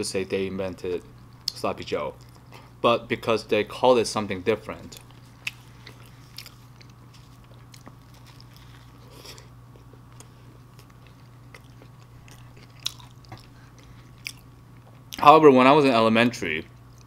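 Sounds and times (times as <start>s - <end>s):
low steady hum: 0.0s - 17.0s
wet chewing: 4.9s - 15.2s.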